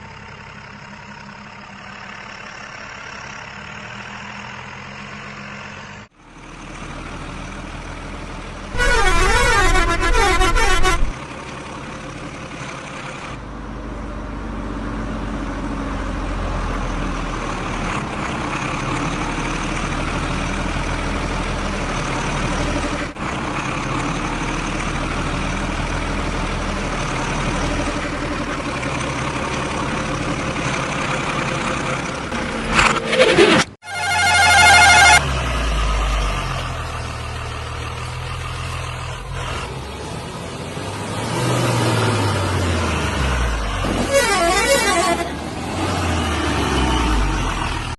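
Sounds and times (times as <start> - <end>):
heavy diesel engines running: 0.0 - 47.9
warbling vehicle horn: 8.8 - 11.2, 33.8 - 35.2, 44.0 - 45.4.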